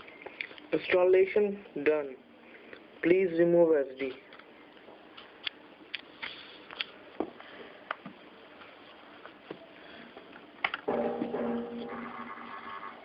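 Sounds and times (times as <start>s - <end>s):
steady held tones: 10.9s - 13.0s.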